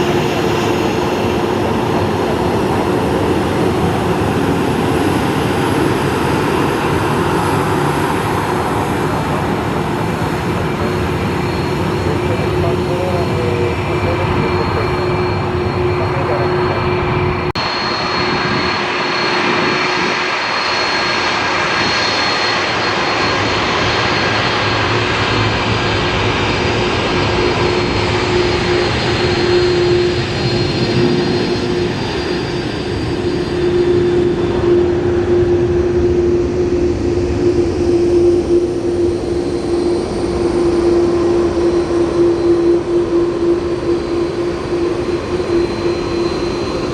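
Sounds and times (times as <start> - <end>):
jet engines running: 0.0 - 46.9.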